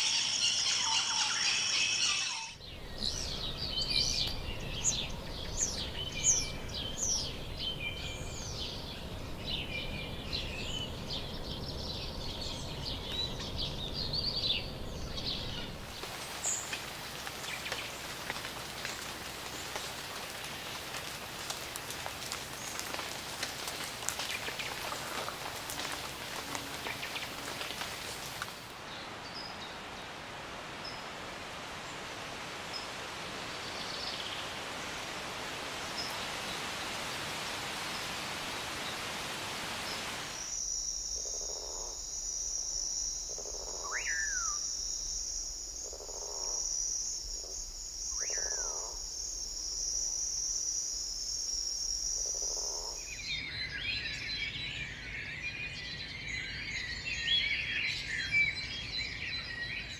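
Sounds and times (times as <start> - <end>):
steady even hiss: 0.0 - 43.4
high insect drone: 15.8 - 28.7, 40.2 - 53.4
rain with pattering drops: 15.8 - 28.8
low animal calls: 16.0 - 28.6.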